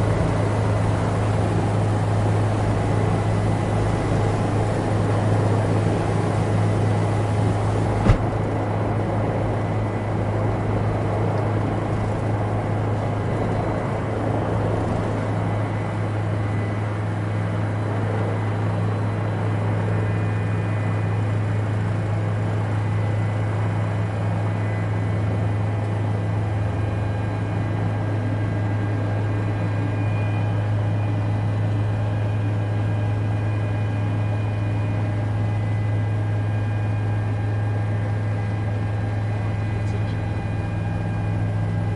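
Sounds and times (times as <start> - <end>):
helicopter droning in flight: 0.0 - 41.9.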